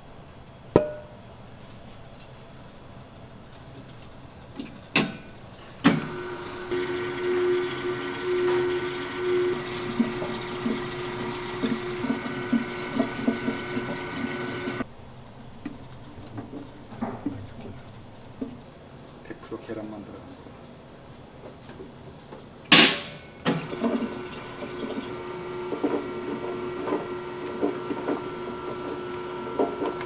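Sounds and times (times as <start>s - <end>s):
machine knocking: 5.9s - 14.8s, 23.5s - 30.0s
pasta machine motor humming: 5.9s - 14.8s, 22.8s - 30.0s.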